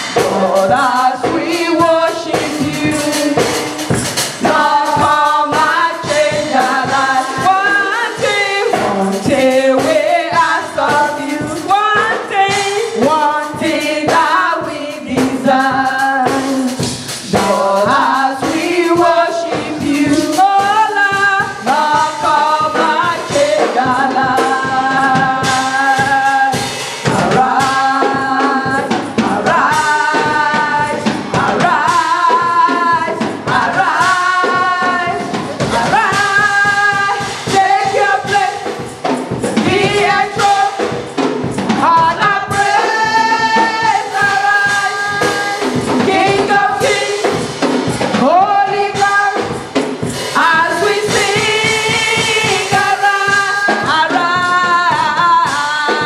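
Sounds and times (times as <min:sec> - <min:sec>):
drums: 0:00.0 - 0:56.0
gospel choir singing: 0:00.0 - 0:56.0
tambourine: 0:00.0 - 0:56.0.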